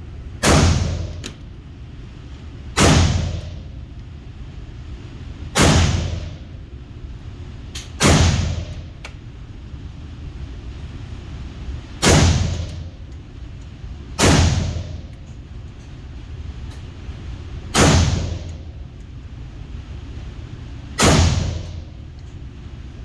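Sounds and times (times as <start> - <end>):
rifle shots echoing: 0.4 - 1.3, 2.8 - 3.7, 5.6 - 6.4, 8.0 - 8.8, 12.0 - 12.8, 14.2 - 15.0, 17.8 - 18.5, 21.0 - 21.8.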